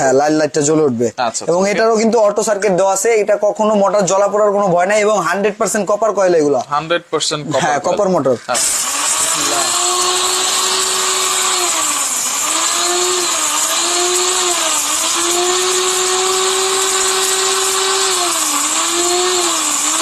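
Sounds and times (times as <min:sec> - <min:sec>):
electric spice grinder motor whine: 0:08.6 - 0:20.0.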